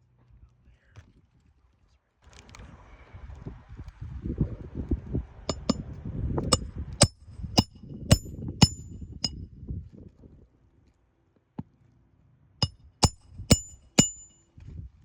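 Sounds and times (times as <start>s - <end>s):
hammer striking metal: 5.5s - 5.8s, 6.5s - 9.4s, 12.6s - 14.4s.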